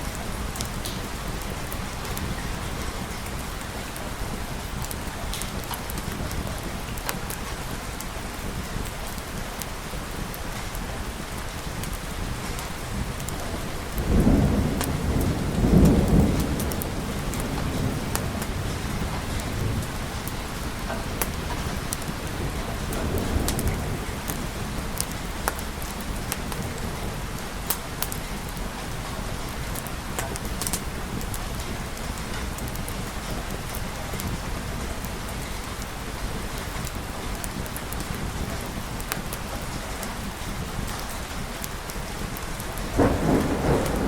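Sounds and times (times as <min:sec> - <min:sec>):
sharp water drips: 0:00.0 - 0:44.0
steady rain: 0:00.0 - 0:44.0
rolling thunder: 0:11.6 - 0:44.0.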